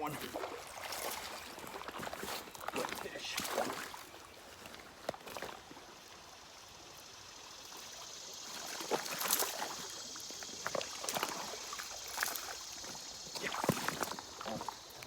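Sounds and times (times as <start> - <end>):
water splash: 0.0 - 4.2, 8.4 - 14.8
creek water running: 0.0 - 15.0.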